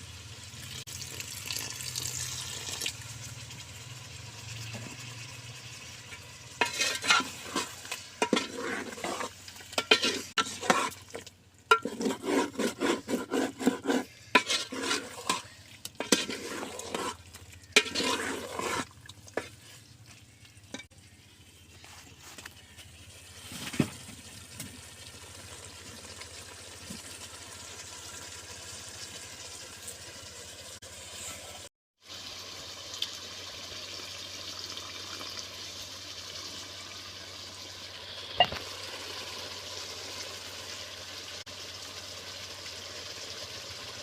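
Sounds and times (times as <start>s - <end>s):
chicken sizzling in a pot: 0.0s - 44.0s
stirring and scraping in a pot: 4.5s - 24.7s.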